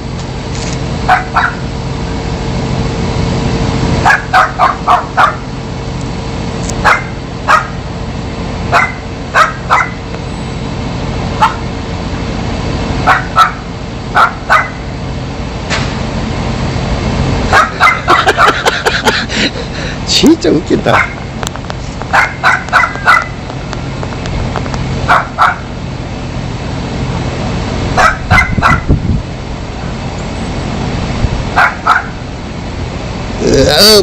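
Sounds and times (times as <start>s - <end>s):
steady low hum: 0.0s - 34.0s
dog barking: 1.1s - 1.6s, 4.0s - 5.4s, 6.8s - 7.8s, 8.7s - 10.0s, 11.4s - 11.6s, 13.0s - 13.6s, 14.2s - 14.8s, 17.5s - 18.6s, 20.9s - 21.2s, 22.1s - 23.4s, 25.1s - 25.7s, 28.0s - 28.9s, 31.6s - 32.2s.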